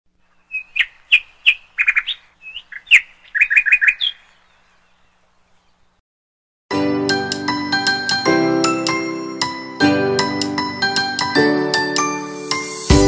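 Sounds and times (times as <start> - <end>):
songbird chirping: 0.1 - 6.0.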